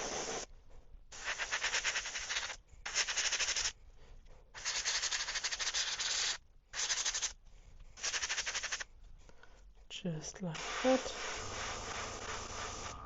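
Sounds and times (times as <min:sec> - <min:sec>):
airbrush spraying hiss: 0:00.0 - 0:00.5, 0:01.1 - 0:03.7, 0:04.6 - 0:07.4, 0:08.0 - 0:08.8, 0:10.5 - 0:13.0.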